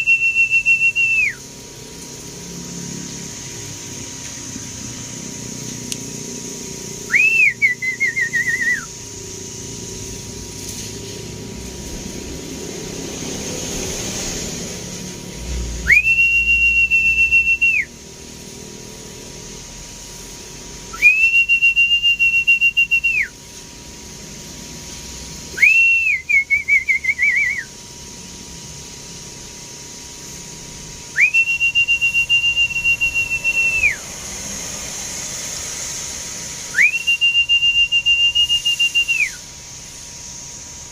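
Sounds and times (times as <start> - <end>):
high whistles: 0.0 - 1.6, 2.5 - 18.0, 20.9 - 23.4, 25.4 - 27.8, 31.0 - 40.9.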